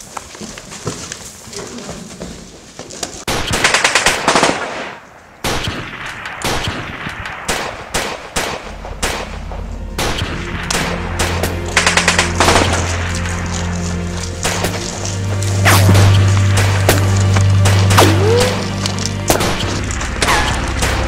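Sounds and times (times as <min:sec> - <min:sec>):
gunfire: 0:03.3 - 0:13.1, 0:15.6 - 0:18.6, 0:19.3 - 0:21.0
low droning music tone: 0:07.2 - 0:21.0.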